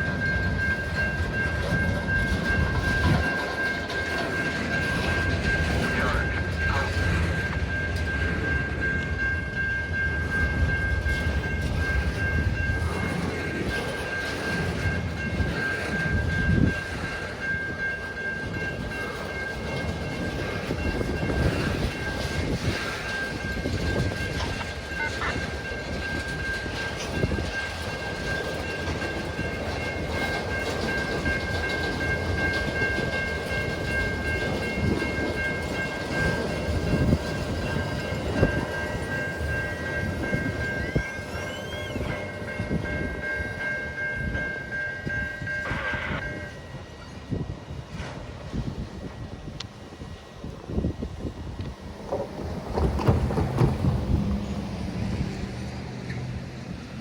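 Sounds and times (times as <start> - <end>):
wheels clattering over rail joints: 0.0 - 46.4, 51.6 - 57.0
freight train rumble: 0.0 - 57.0
high-pitched tones: 23.2 - 26.3, 38.3 - 47.2.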